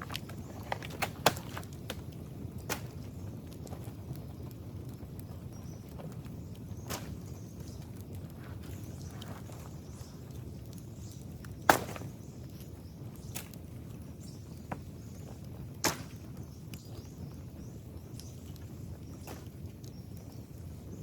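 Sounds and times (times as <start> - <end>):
dry bamboo cracking: 0.0 - 4.1, 5.9 - 16.9.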